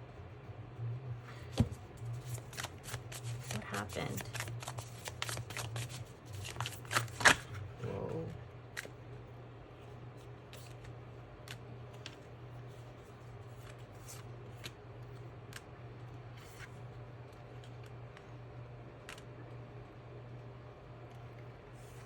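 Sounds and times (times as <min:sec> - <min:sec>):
low electrical hum: 0:00.0 - 0:22.0
cards snapping and tapping: 0:01.5 - 0:07.6.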